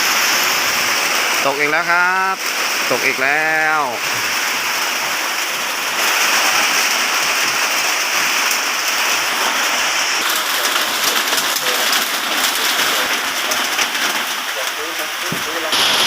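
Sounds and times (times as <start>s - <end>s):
heavy rain hissing: 0.0s - 16.0s
raindrops ticking on a surface: 0.0s - 16.0s.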